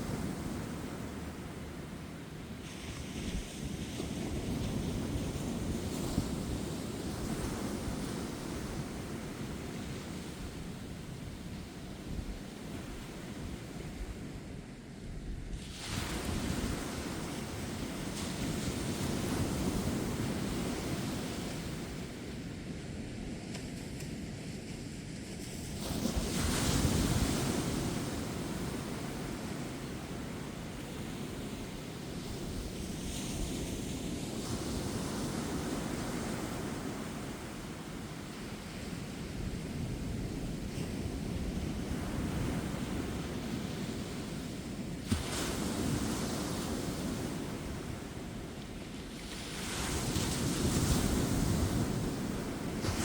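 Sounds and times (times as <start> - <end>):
wind on microphone: 0.0 - 22.4, 25.4 - 53.0
ocean waves breaking: 25.8 - 53.0.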